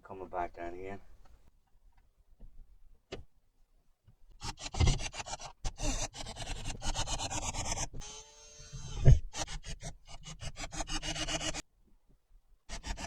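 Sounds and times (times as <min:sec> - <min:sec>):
sandpaper rubbing wood: 0:04.4 - 0:11.6, 0:12.7 - 0:13.0.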